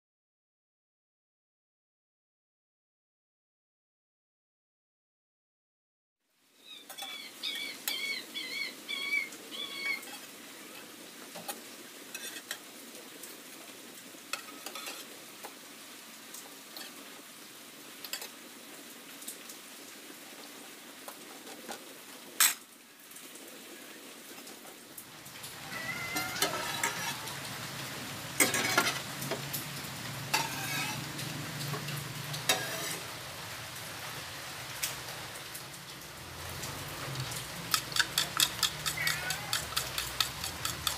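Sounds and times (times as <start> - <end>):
bread sizzling in a pan: 8.9 - 23.5, 25.0 - 40.9
metal spatula scraping a pan: 10.0 - 12.6, 14.3 - 15.1, 25.5 - 27.4, 28.4 - 29.1, 30.3 - 31.1, 32.4 - 33.1, 37.7 - 40.9.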